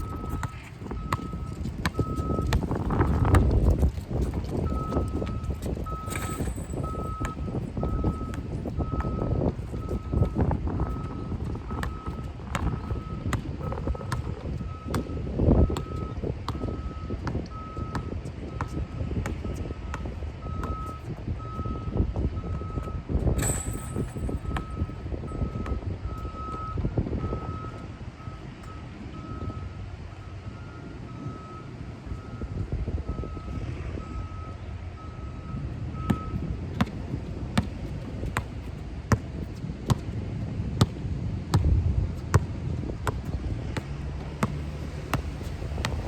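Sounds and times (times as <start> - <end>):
vehicle reversing alarm beeping: 0.0 - 3.2, 4.4 - 37.0
wind rumble on microphone: 0.0 - 46.0.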